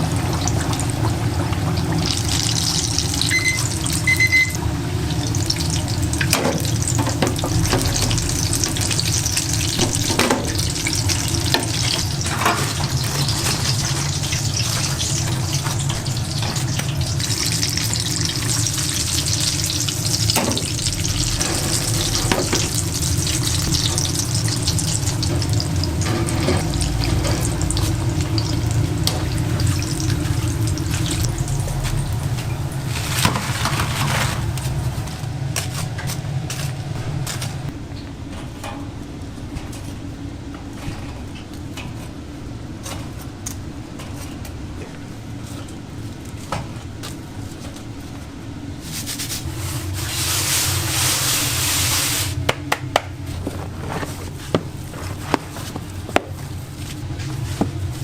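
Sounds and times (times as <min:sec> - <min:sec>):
dough sizzling in hot oil: 0:00.0 - 0:35.1, 0:48.8 - 0:52.4.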